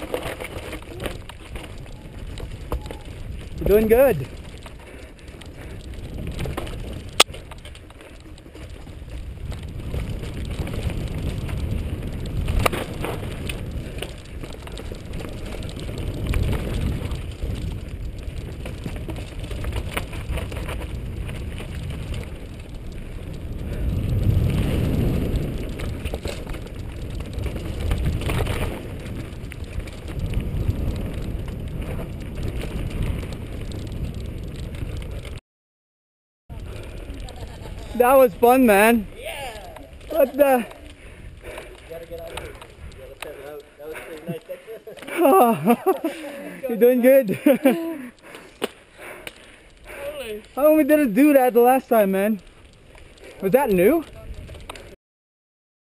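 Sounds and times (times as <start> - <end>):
bike clicking and rattling: 0.0 - 35.4, 36.5 - 55.0
tyres rumbling on dirt: 0.0 - 35.4, 36.5 - 55.0
wind on microphone: 8.5 - 35.4.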